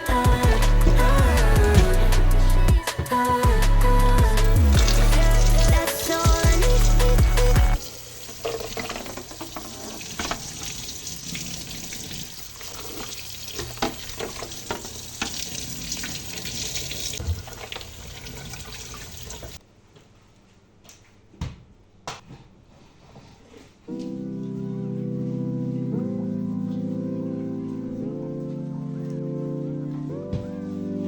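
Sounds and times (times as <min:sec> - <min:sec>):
tap water running into sink: 0:04.8 - 0:19.6.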